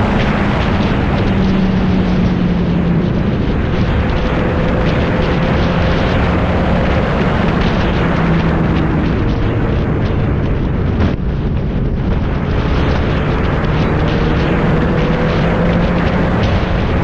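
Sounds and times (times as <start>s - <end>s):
motorcycle engine running: 0.0s - 17.0s
wind rush: 0.0s - 17.0s.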